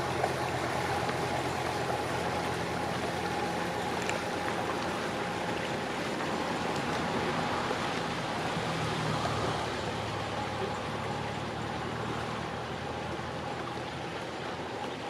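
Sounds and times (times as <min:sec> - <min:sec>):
engine running at low revs: 0:00.0 - 0:15.0.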